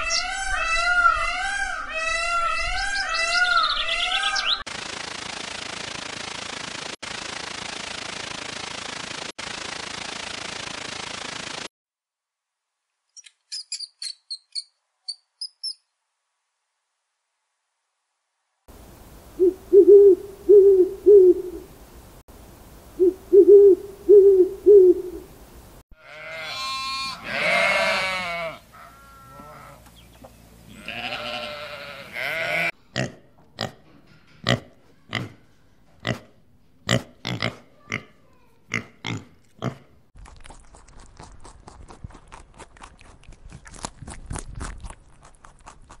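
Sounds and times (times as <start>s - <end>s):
lamb bleating: 26.0s - 29.9s, 30.7s - 33.1s.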